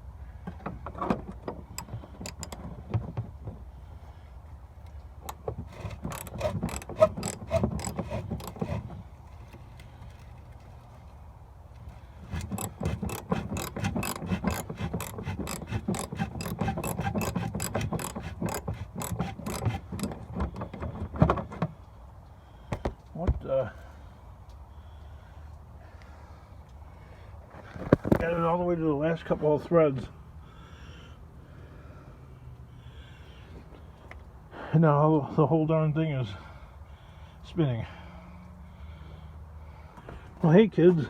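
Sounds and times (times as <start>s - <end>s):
ratchet wrench clicking: 1.8s - 2.6s, 5.3s - 8.8s, 12.3s - 20.2s.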